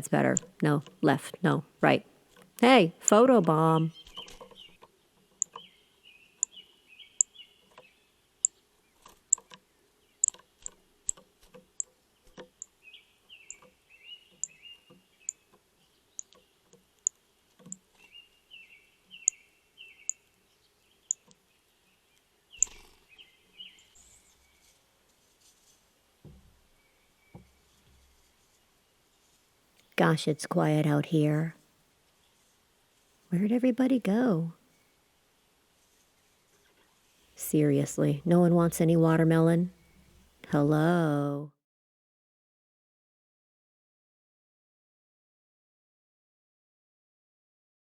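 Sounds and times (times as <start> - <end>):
songbirds chirping: 0.0 - 25.0, 26.5 - 32.5, 33.3 - 41.5
sharp irregular clicks and taps: 10.2 - 12.7, 16.2 - 17.8.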